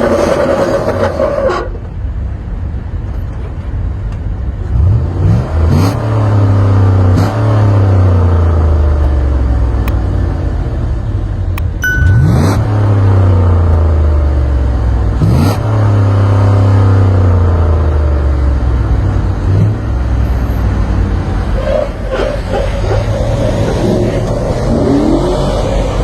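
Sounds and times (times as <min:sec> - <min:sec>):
truck engine revving: 0:04.7 - 0:10.8, 0:11.9 - 0:26.0
brief high beep: 0:11.8 - 0:13.2.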